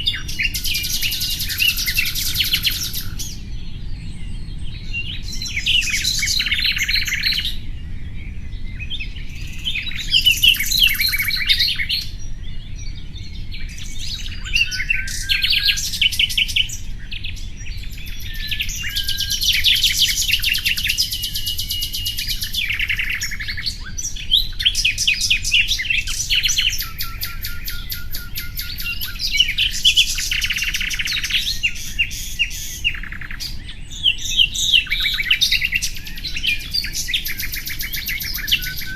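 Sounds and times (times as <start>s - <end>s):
nightingale singing: 0.0s - 38.9s.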